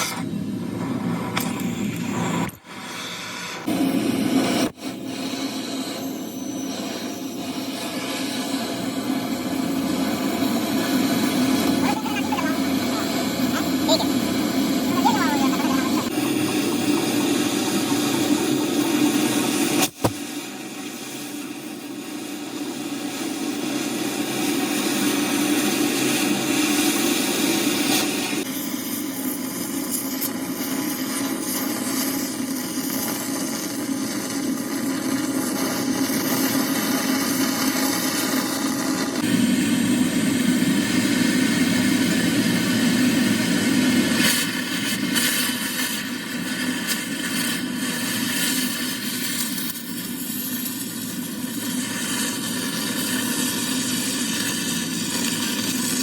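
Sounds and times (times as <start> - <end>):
machinery running: 3.6 - 29.4, 32.7 - 46.9.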